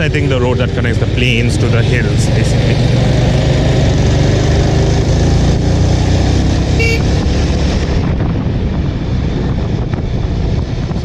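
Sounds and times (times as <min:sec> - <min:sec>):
motorcycle engine running: 0:06.6 - 0:10.3
vehicle horn toot: 0:06.8 - 0:07.2.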